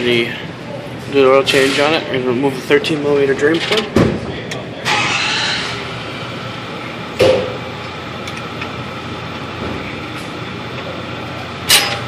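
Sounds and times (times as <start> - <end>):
sharp metallic knock: 7.2 - 7.6.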